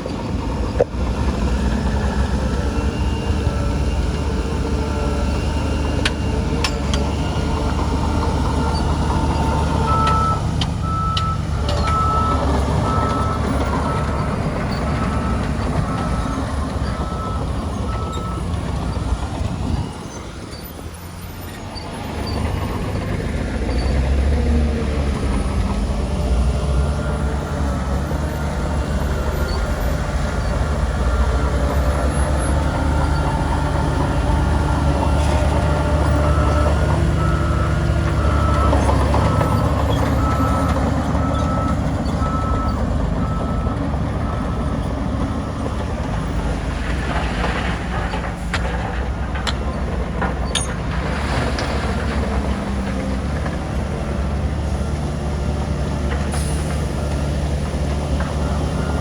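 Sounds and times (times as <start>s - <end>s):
heavy diesel machinery engine: 0.0s - 59.0s
reversing alarm beeping: 7.9s - 21.1s, 26.0s - 45.8s.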